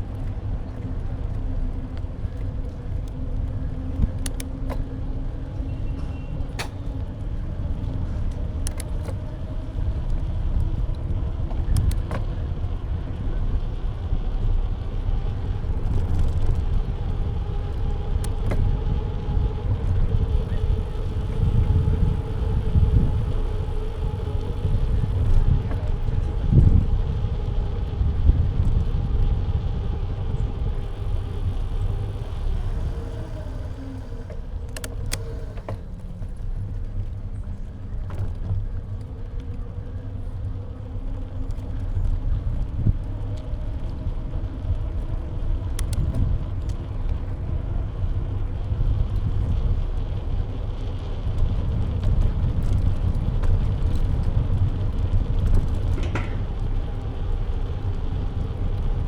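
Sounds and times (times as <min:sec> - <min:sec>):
road rumble: 0:00.0 - 0:59.0
wind buffeting: 0:00.0 - 0:59.0
faint steady hum: 0:12.6 - 0:59.0
clicks and rattles from bike mount: 0:55.7 - 0:56.7.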